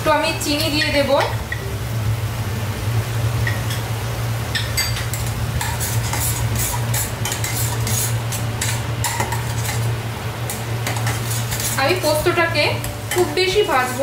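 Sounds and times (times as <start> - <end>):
oil sizzling: 0.0 - 14.0
steady low hum: 0.0 - 14.0
metal spatula scraping pan: 4.6 - 9.9, 10.5 - 12.1.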